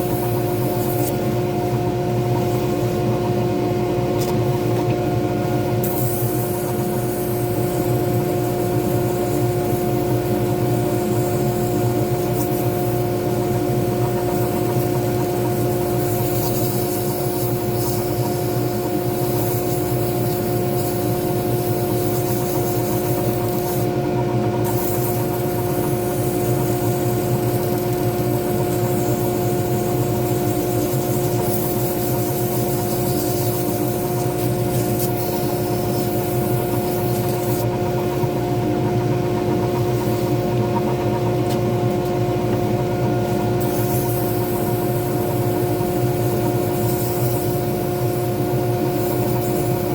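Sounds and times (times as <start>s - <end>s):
lathe humming: 6.7s - 49.9s
hiss of wood being turned: 24.6s - 37.7s, 43.5s - 49.9s.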